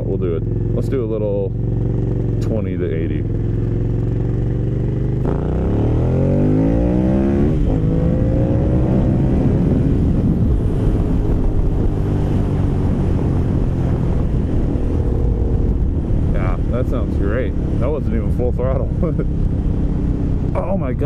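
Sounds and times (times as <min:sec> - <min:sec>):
motorcycle engine accelerating: 0:00.0 - 0:21.0
rushing wind noise: 0:03.2 - 0:21.0.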